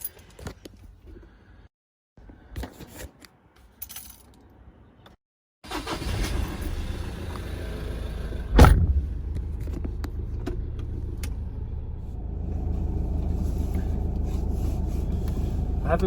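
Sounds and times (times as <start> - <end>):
vehicle engine and road rumble: 5.7 - 16.0
loud thump: 8.5 - 9.8.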